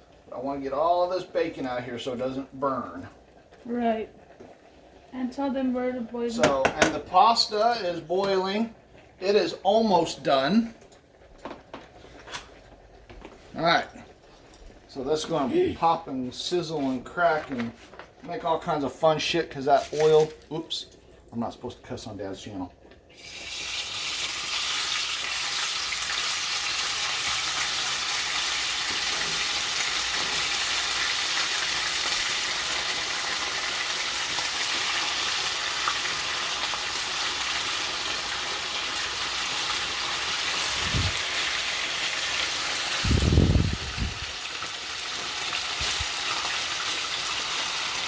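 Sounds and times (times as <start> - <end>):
chicken frying in sizzling oil: 0.0 - 10.6, 23.1 - 48.0.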